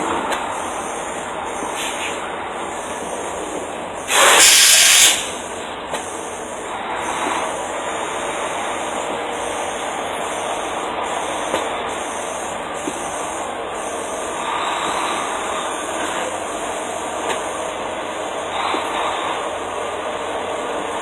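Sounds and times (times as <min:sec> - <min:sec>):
heavy vehicles rumbling: 0:00.0 - 0:21.0
loud hiss: 0:04.0 - 0:05.5.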